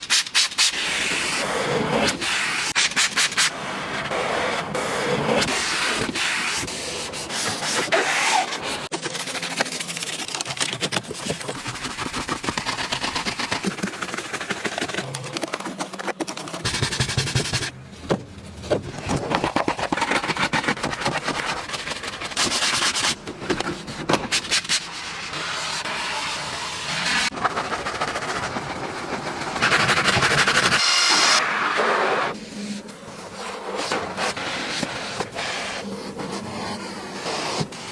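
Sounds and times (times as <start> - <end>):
brush scrubbing car surface: 11.2 - 16.0.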